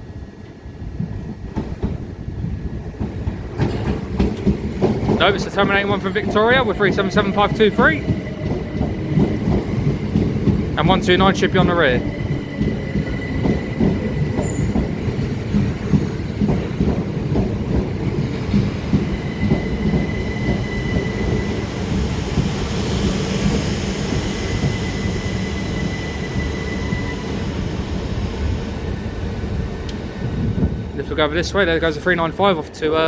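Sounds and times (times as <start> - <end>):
train wheels rumbling on rail: 0.0 - 33.0
high wheel squeal: 23.9 - 27.7.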